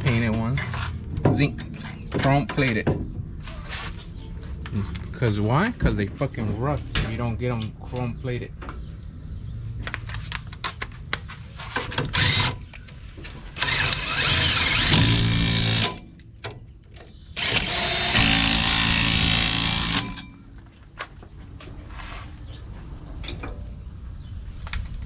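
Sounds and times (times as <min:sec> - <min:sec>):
power tool driving bolts: 0:11.8 - 0:12.8, 0:13.6 - 0:16.6, 0:17.4 - 0:20.5.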